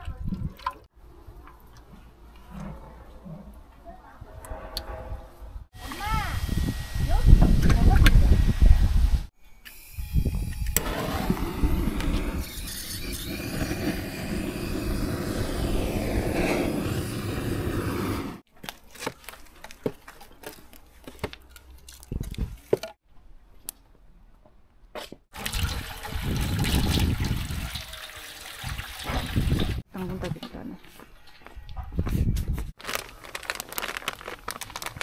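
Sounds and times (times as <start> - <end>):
oil pouring into a pot: 25.4 - 29.8.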